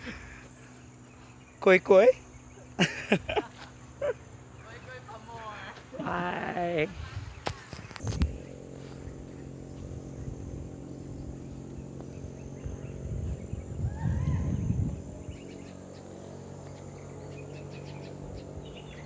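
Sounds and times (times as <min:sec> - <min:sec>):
steady low hum: 0:00.0 - 0:19.0
low rumble: 0:05.9 - 0:19.0.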